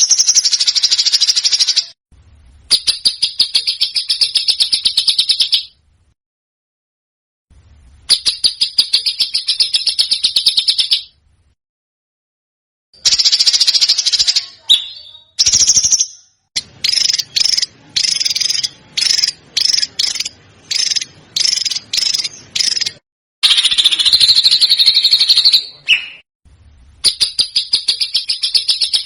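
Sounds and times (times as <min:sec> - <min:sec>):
songbird harsh trilled song: 0:13.1 - 0:26.2.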